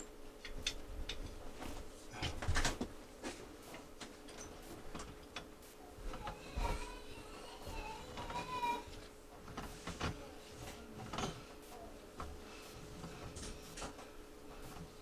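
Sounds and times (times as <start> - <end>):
tools clicking and knocking: 0.0 - 1.4
faint steady hum: 0.0 - 15.0.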